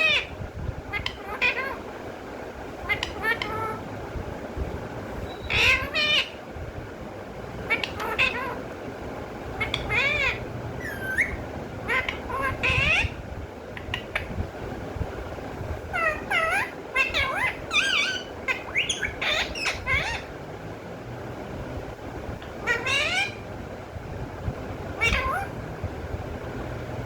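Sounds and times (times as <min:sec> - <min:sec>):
parrot squawking and chattering: 0:00.0 - 0:01.9, 0:02.8 - 0:03.9, 0:05.1 - 0:06.4, 0:07.5 - 0:08.8, 0:09.4 - 0:14.4, 0:15.8 - 0:20.4, 0:22.4 - 0:23.5, 0:24.8 - 0:25.6.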